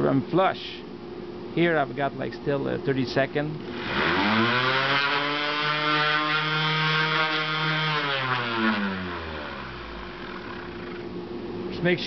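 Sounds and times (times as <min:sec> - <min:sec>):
electric orbital sander running: 0:03.6 - 0:11.1.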